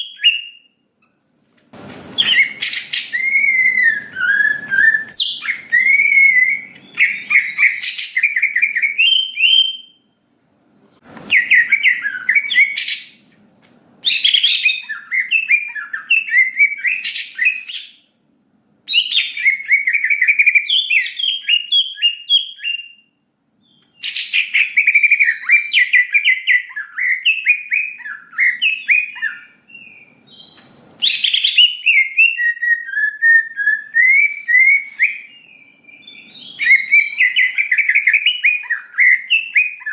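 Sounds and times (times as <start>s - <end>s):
bird singing warbling phrases: 0.0s - 1.2s, 2.2s - 10.1s, 11.3s - 13.2s, 14.0s - 18.1s, 18.9s - 39.9s.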